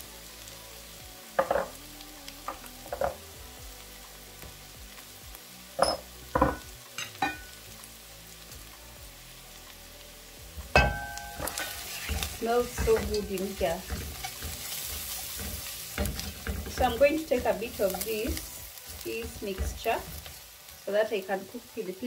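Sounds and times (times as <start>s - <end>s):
onions sizzling in oil: 0.0s - 22.0s.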